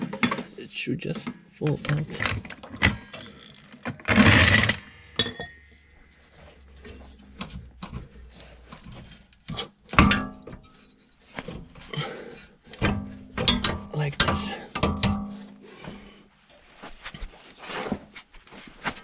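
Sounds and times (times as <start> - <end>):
metal clinks and knocks: 1.2 - 15.6
ringing metal clank: 5.1 - 5.8.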